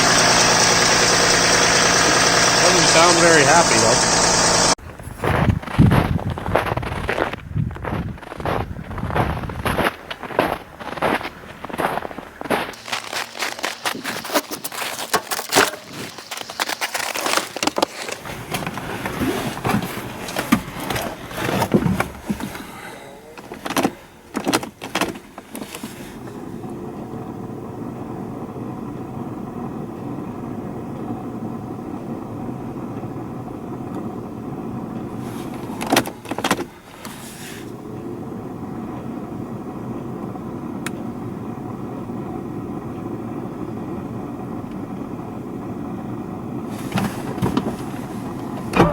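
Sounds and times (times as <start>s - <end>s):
diesel engine knocking and idling: 0.0s - 15.0s, 15.9s - 48.9s.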